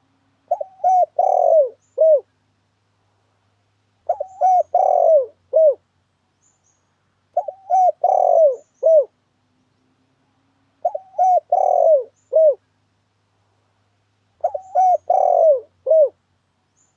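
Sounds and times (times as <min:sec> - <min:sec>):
dove cooing: 0:00.0 - 0:02.3, 0:04.0 - 0:05.8, 0:07.4 - 0:09.2, 0:10.8 - 0:12.6, 0:14.4 - 0:16.2.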